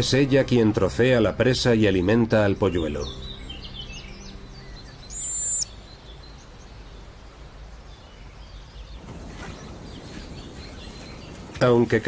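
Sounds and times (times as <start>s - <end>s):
outdoor background noise: 0.0s - 12.0s
high-pitched bird call: 3.1s - 5.7s.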